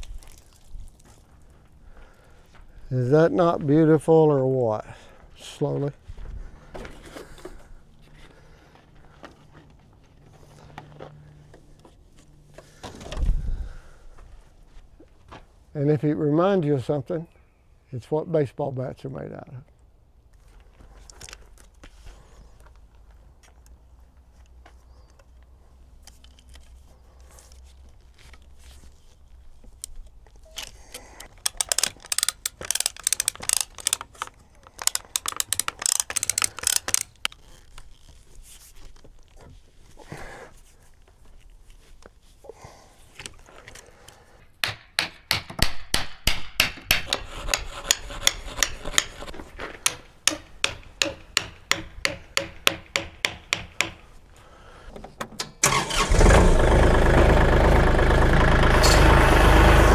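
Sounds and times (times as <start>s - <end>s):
scraping strokes on wood: 46.9s - 54.0s.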